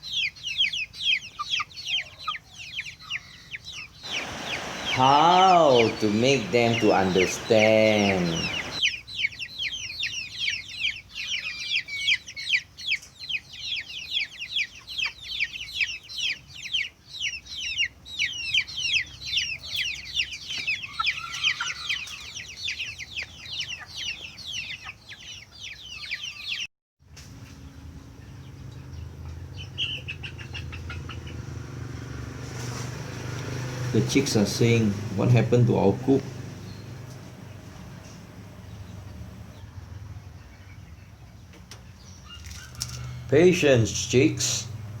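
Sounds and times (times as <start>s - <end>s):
chicks peeping: 0.0s - 26.7s, 28.3s - 39.6s
low steady hum: 33.9s - 39.6s.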